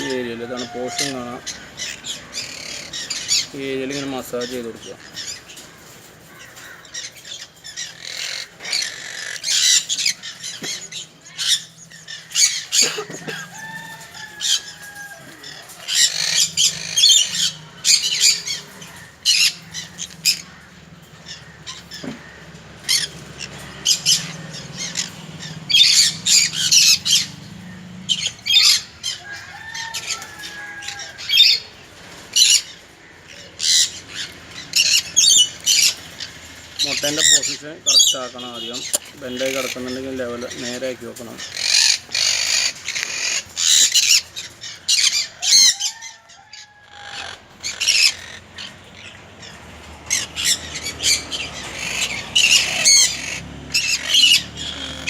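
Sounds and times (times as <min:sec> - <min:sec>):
parrot squawking shrilly: 0:07.0 - 0:18.6, 0:41.4 - 0:49.2, 0:50.1 - 0:55.0.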